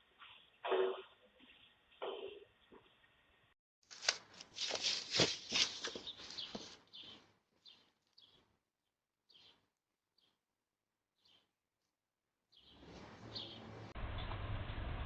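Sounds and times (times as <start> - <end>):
small bird chirping: 5.8 - 8.6, 9.2 - 10.4, 11.2 - 11.5.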